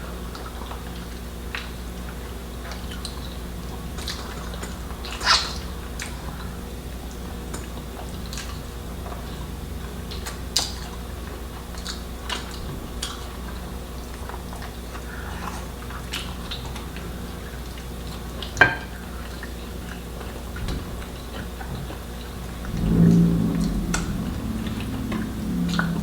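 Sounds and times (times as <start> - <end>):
low hum: 22.4 - 26.0.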